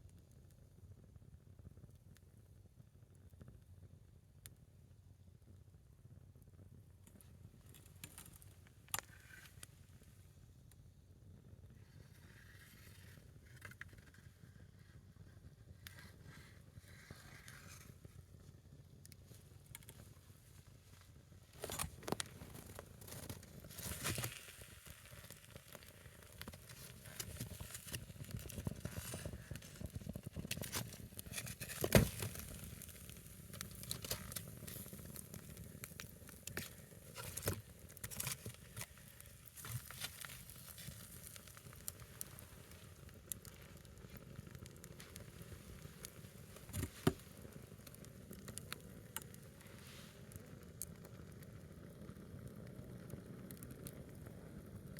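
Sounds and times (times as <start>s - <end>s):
log fire crackling and popping: 7.0s - 10.8s, 11.7s - 54.9s.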